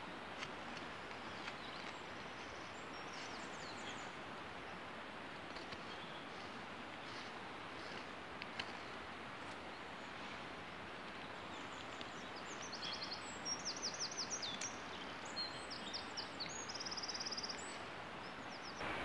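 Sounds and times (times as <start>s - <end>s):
steady outdoor hiss: 0.0s - 19.0s
songbird singing: 1.1s - 4.8s, 11.0s - 19.0s.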